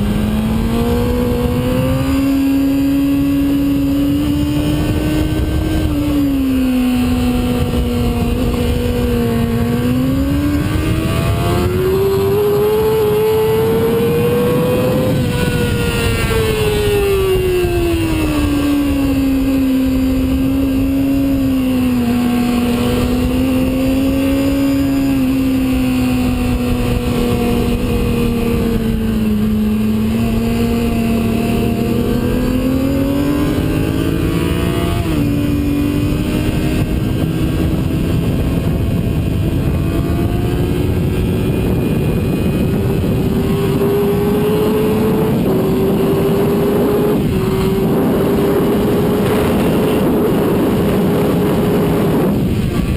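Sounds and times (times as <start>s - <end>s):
heavy wind rush: 0.0s - 52.9s
sport bike engine: 0.0s - 52.9s.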